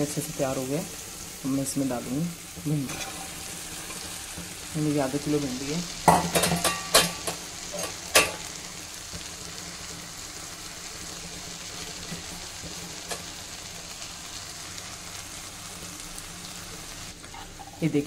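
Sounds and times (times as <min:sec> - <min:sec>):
gentle frying sizzle: 0:00.0 - 0:18.0.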